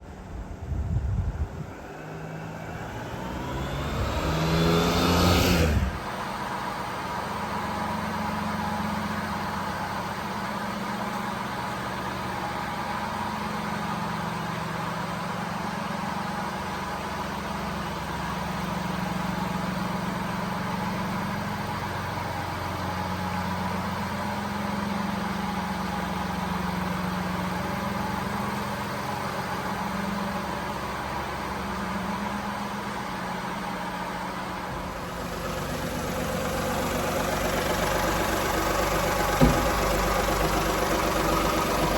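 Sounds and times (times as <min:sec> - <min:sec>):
small engine idling: 0:00.0 - 0:41.9.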